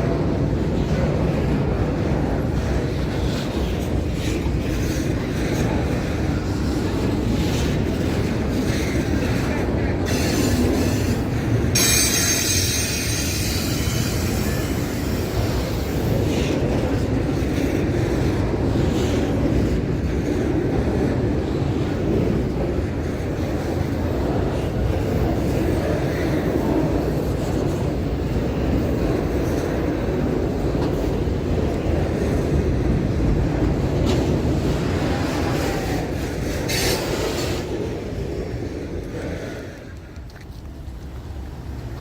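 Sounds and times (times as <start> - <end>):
train rumbling past: 0.0 - 42.0
train wheels squealing: 8.6 - 16.3, 35.0 - 37.7.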